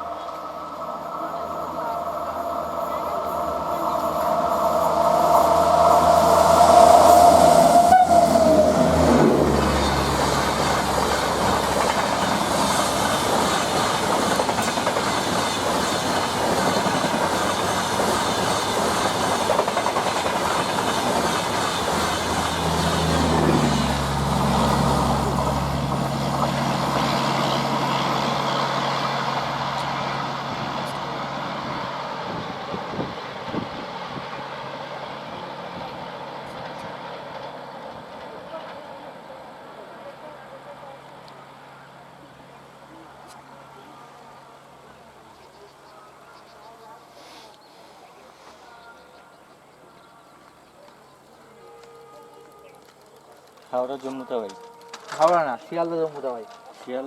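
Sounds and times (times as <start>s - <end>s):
train horn: 1.4s - 10.3s, 51.3s - 53.1s, 53.8s - 56.6s
train wheels clattering: 4.8s - 30.2s.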